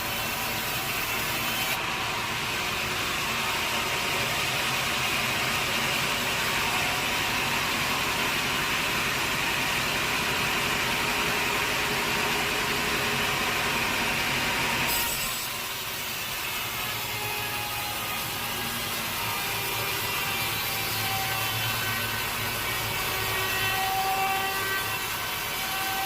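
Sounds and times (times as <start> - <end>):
saw cutting through log: 0.0 - 26.0.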